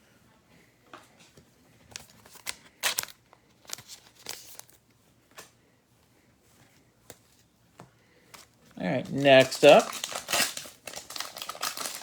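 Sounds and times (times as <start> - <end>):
wrapper crinkling and tearing: 2.0 - 4.8, 9.0 - 12.0.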